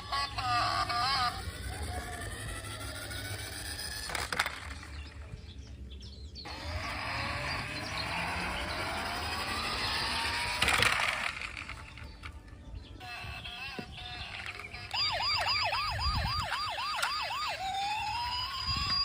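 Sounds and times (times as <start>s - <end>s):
toy car whirring: 0.0s - 5.4s, 6.5s - 19.0s
plastic toy clattering: 0.9s - 5.2s, 8.9s - 12.6s, 13.6s - 15.0s
plastic toy clicks: 1.6s - 4.9s, 8.7s - 12.4s.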